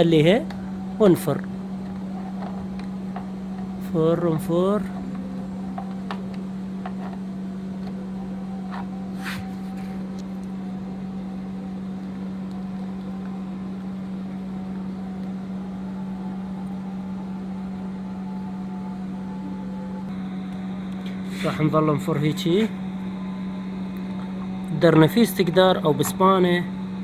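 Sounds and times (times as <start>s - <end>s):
low hum with strong tone: 0.0s - 27.0s.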